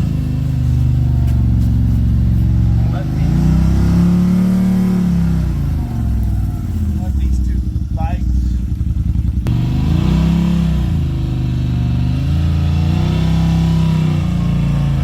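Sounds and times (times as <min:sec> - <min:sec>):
engine revving: 0:00.0 - 0:15.0.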